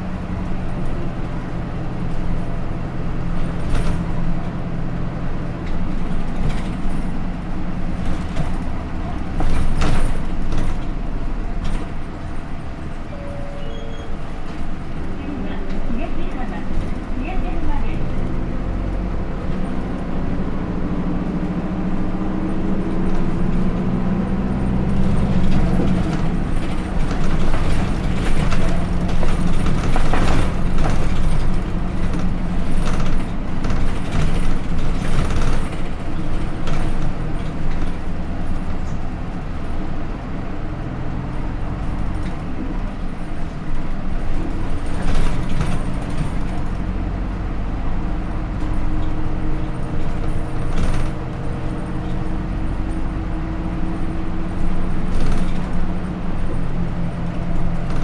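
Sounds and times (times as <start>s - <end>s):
bus diesel engine running: 0.0s - 58.0s
road noise: 0.0s - 58.0s
clatters and knocks: 5.6s - 12.9s, 22.6s - 39.8s, 42.1s - 47.1s, 48.5s - 58.0s.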